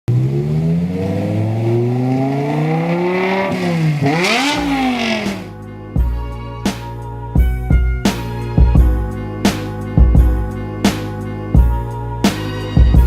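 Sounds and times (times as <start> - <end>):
car exhaust accelerating: 0.1 - 5.6.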